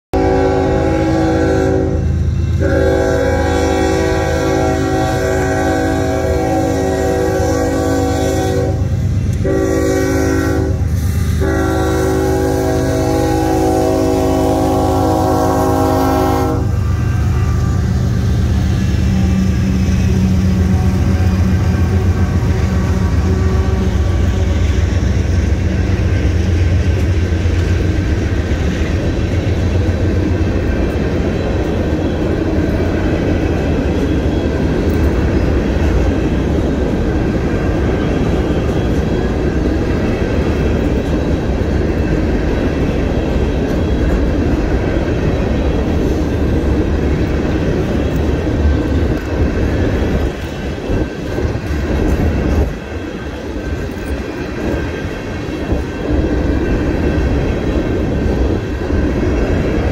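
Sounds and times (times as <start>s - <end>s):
locomotive air horn: 0.2s - 25.2s
freight cars rolling on rails: 0.2s - 59.9s
locomotive engine rumble: 0.2s - 59.9s.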